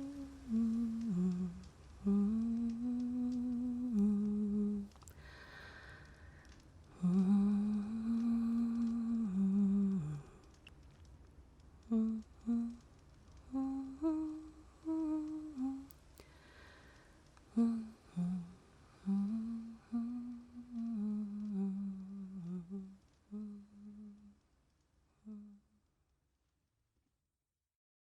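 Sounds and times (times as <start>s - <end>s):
woman humming a slow tune: 0.0s - 5.6s, 6.9s - 10.6s, 11.8s - 16.0s, 17.5s - 24.4s, 25.2s - 25.8s.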